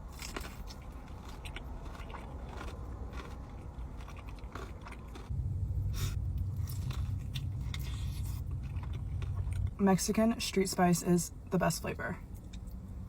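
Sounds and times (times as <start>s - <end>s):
crunchy chewing: 0.0s - 9.8s
steady low hum: 0.0s - 13.0s.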